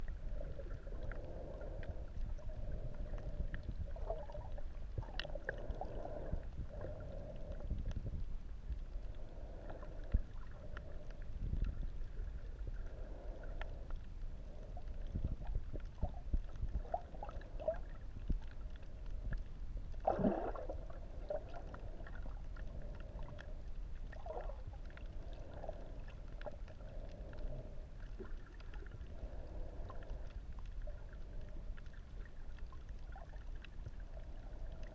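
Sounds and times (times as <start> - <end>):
muffled underwater rumble: 0.0 - 34.9
faint clicks: 1.0 - 8.1
water gurgling: 20.0 - 23.5.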